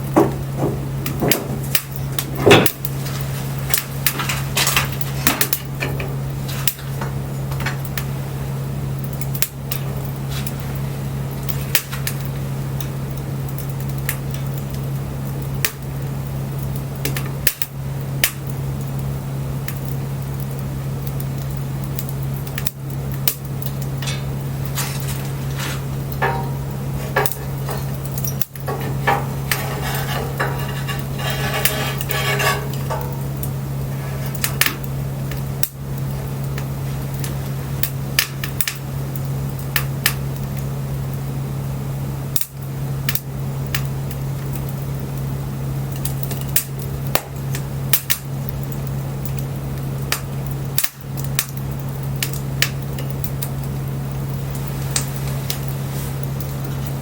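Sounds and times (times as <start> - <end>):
bonfire crackling and popping: 0.0 - 57.0
low steady hum: 0.0 - 57.0.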